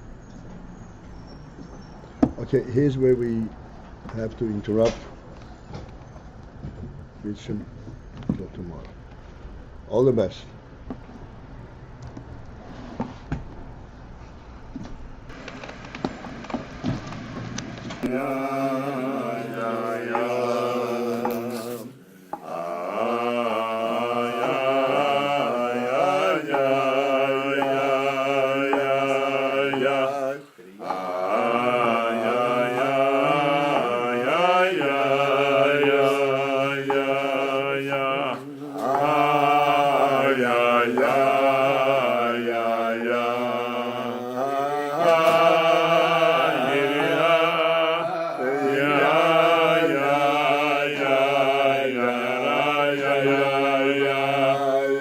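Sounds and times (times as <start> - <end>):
person singing wordless melody: 18.0 - 55.0.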